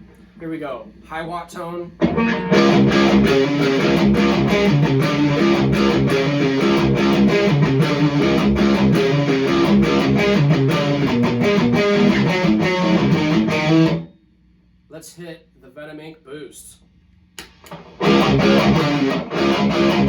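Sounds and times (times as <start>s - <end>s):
electric guitar riffing: 2.0s - 14.0s, 17.7s - 20.0s.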